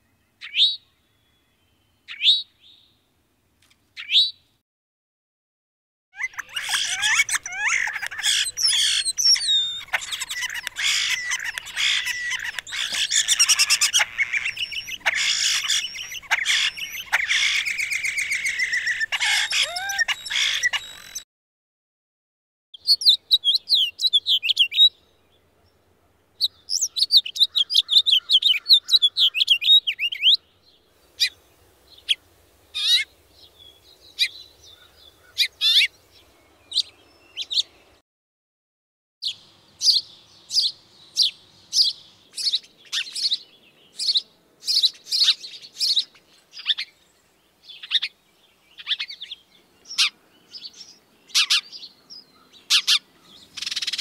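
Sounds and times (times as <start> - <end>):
bird chattering trill: 6.2 - 21.2
sharp bird chirps: 6.2 - 21.2, 39.2 - 47.0, 48.8 - 54.0
sparrow cheeping: 6.2 - 21.2.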